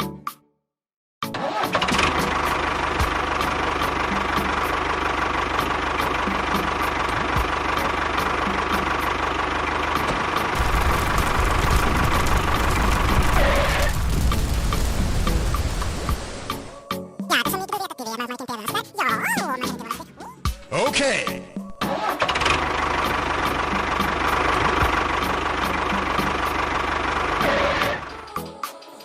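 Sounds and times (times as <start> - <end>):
deep rumble: 10.6 - 16.8.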